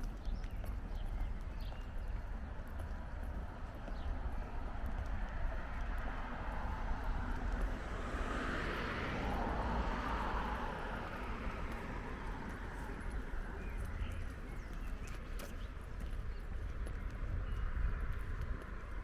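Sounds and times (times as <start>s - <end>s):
footsteps on paving: 0.0s - 7.8s, 10.9s - 19.0s.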